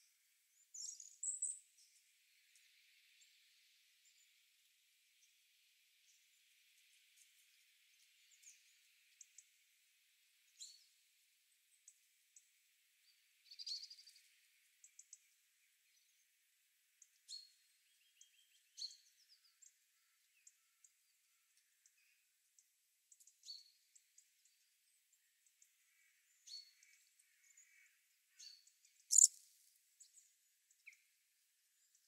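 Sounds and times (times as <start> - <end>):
birds chirping: 26.3 - 29.4
bird trill: 28.4 - 29.4.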